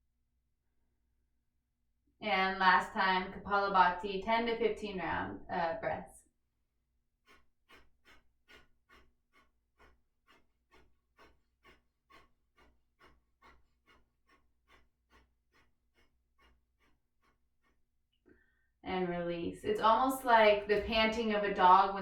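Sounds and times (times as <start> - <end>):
rapid exhalations through the nose: 7.2 - 17.8.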